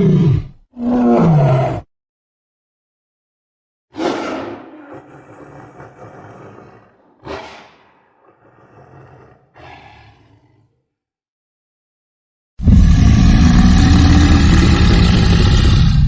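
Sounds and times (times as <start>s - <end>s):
big cat roaring: 0.0s - 1.9s, 4.0s - 10.9s, 12.6s - 16.0s.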